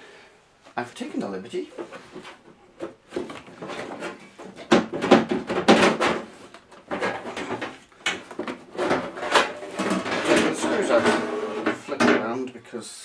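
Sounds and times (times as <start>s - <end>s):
coffee machine casing knocks and rattles: 2.8s - 12.3s.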